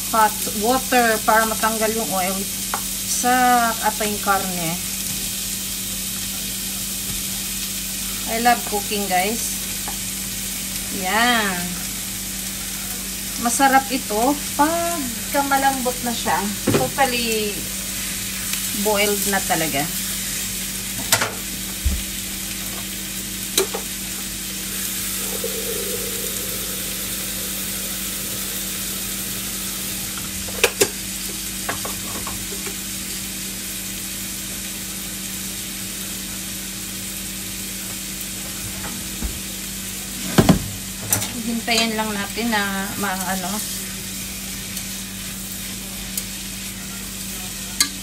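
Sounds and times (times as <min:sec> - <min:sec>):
pork and onions sizzling: 0:00.0 - 0:48.0
low steady hum: 0:24.6 - 0:30.8.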